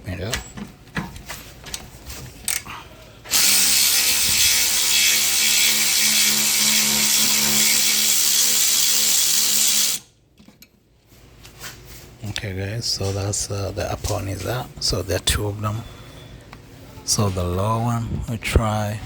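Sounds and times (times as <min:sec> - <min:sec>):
electric ratchet running: 0:03.3 - 0:10.1.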